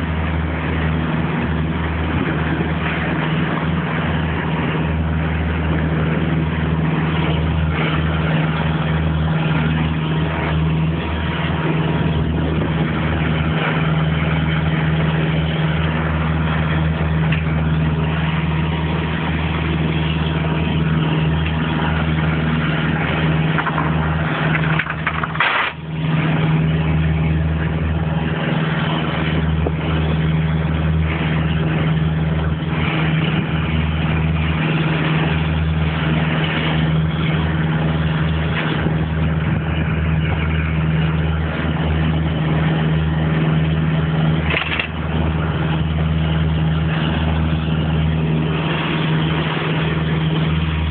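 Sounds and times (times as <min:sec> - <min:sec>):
boat engine humming: 0:00.0 - 0:50.9.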